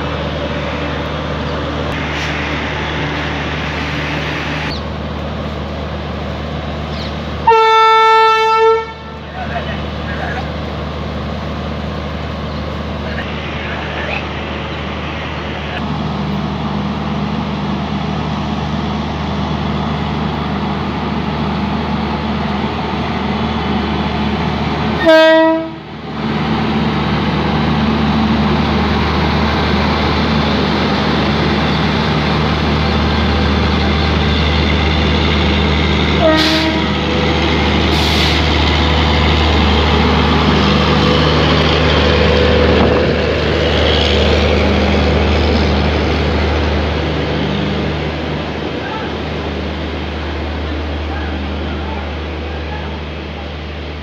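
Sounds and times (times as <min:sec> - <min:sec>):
electric locomotive humming: 0:00.0 - 0:54.0
train wheels and coaches rolling: 0:00.0 - 0:54.0
train horn blast: 0:07.4 - 0:09.2, 0:25.0 - 0:25.8, 0:36.2 - 0:37.0.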